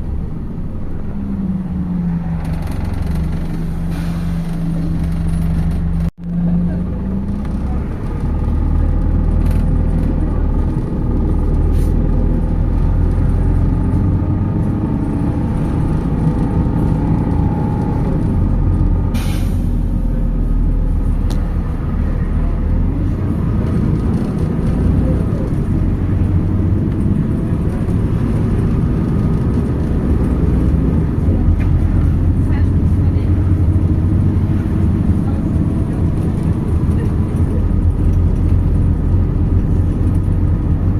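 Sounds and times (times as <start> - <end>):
bus engine and road rumble: 0.0 - 40.9.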